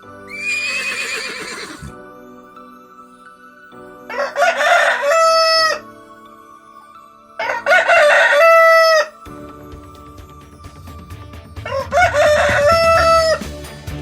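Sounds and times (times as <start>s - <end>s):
rooster crowing: 4.1s - 5.8s, 7.4s - 9.2s, 11.6s - 13.4s.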